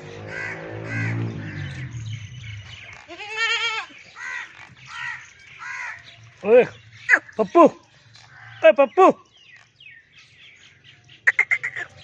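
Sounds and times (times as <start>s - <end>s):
crows cawing: 0.1s - 1.7s, 3.0s - 6.2s, 8.2s - 8.7s
goats bleating: 3.0s - 4.5s.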